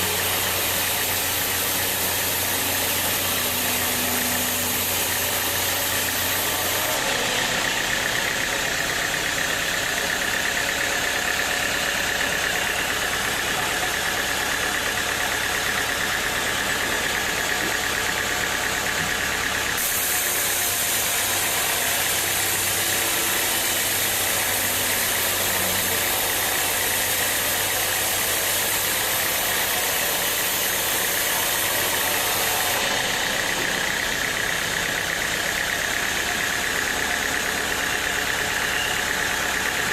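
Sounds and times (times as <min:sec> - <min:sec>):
steady high whine: 0:00.0 - 0:17.7
sawmill machinery drone: 0:00.0 - 0:39.9.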